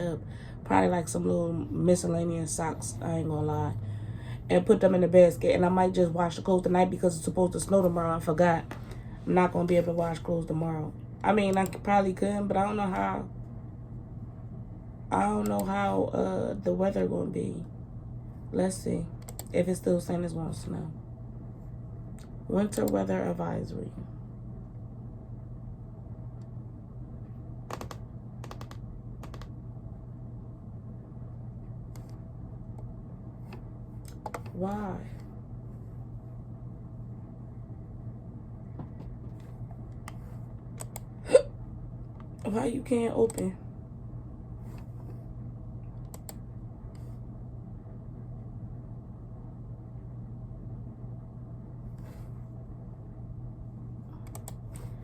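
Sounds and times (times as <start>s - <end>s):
steady low hum: 0.0s - 55.0s
computer keys clicking: 27.7s - 29.5s, 34.0s - 34.6s, 54.2s - 54.6s.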